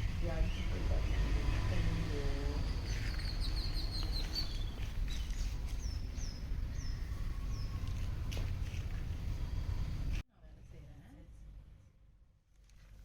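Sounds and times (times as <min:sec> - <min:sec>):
small birds chirping: 0:00.0 - 0:10.2
low outdoor rumble: 0:00.0 - 0:13.0.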